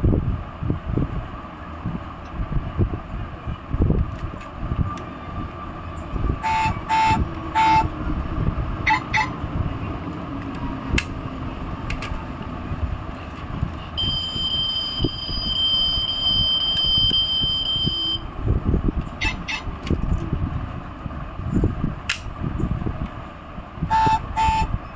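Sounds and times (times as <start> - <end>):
low rumbling noise: 0.0 - 24.9
high-pitched electronic tone: 14.0 - 18.2.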